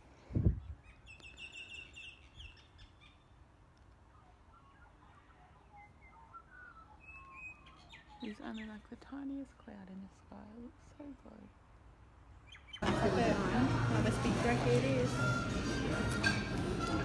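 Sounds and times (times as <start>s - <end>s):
soft whistled bird calls: 4.0s - 8.8s
high bird chirps: 4.1s - 9.0s, 12.4s - 12.8s.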